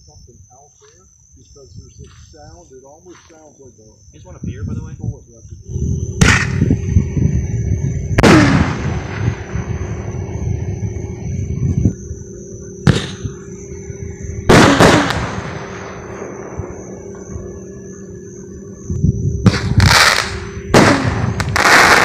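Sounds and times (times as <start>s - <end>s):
insects droning: 0.0s - 22.0s
fireworks bangs: 6.2s - 6.8s, 8.1s - 10.1s, 12.8s - 13.5s, 14.4s - 17.5s, 19.4s - 22.0s.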